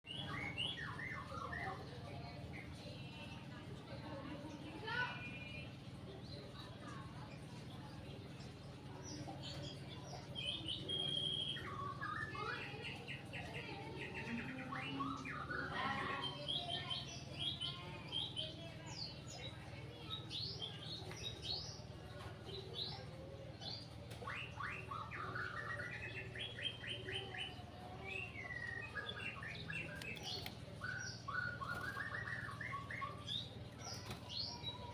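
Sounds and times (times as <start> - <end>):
bird singing whistled trills: 0.1 - 1.9, 10.2 - 12.9, 23.6 - 34.8.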